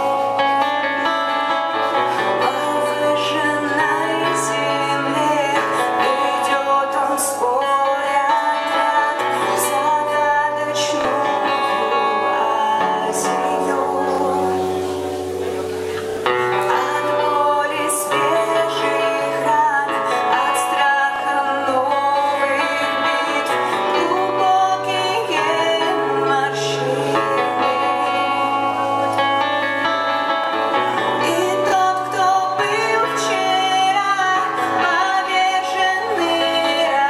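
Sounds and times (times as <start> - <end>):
guitar: 0.0 - 37.0
person singing: 0.0 - 37.0.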